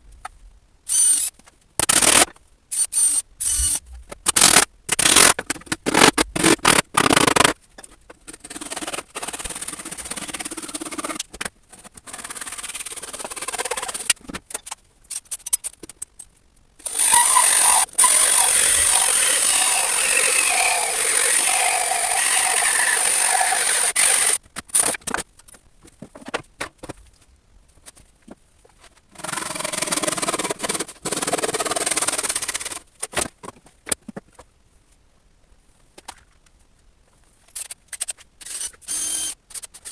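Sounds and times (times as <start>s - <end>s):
woodworking tool whine: 16.8s - 24.4s.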